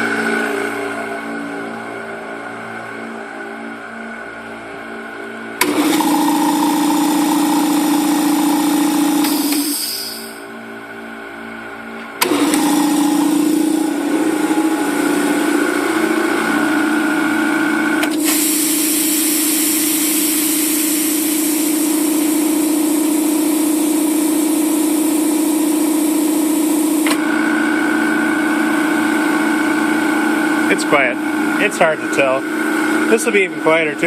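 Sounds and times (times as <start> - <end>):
compressor pumps humming: 0.0 - 34.0
loud air hiss: 9.2 - 10.4, 18.1 - 22.0.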